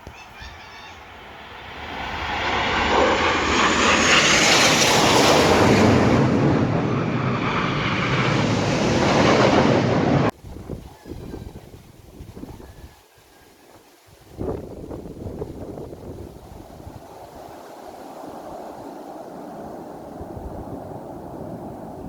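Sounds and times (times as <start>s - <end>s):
jets flying past: 0.5s - 10.3s.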